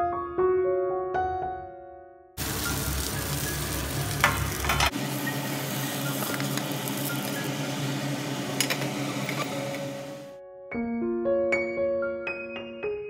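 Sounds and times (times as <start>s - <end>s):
food sizzling in oil: 2.4s - 10.2s
utensils clinking on griddle: 4.1s - 7.5s, 8.6s - 9.8s.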